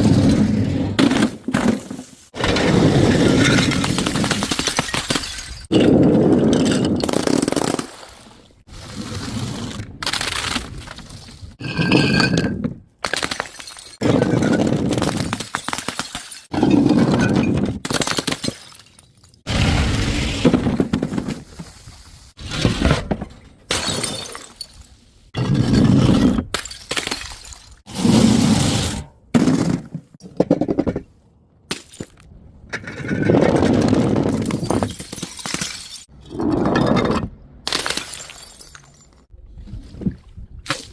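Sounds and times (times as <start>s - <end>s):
glass crashing and crunching: 2.4s - 5.8s, 34.5s - 36.1s, 37.7s - 39.3s
glass bottles smashing: 3.1s - 5.9s, 13.1s - 16.5s, 23.7s - 24.8s, 34.5s - 36.1s, 37.7s - 39.3s.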